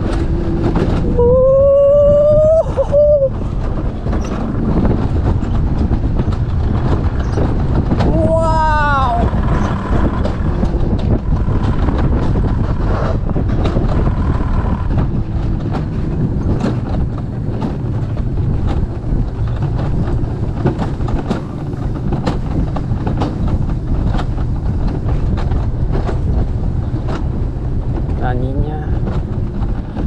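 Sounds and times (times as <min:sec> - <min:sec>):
coaster sled rumbling on rail: 0:00.0 - 0:30.0
wheels clacking on rail: 0:00.0 - 0:30.0
wind on microphone: 0:00.0 - 0:30.0.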